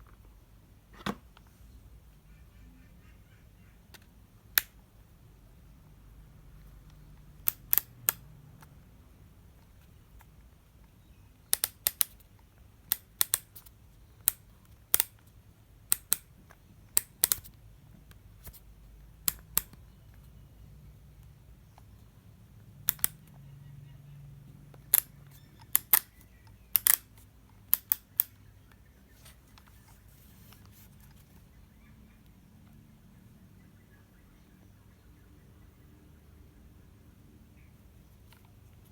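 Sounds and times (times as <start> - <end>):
sharp short clicks: 6.9 - 8.2, 11.4 - 12.3, 12.9 - 15.2, 16.9 - 17.6, 22.8 - 23.4, 24.7 - 28.5.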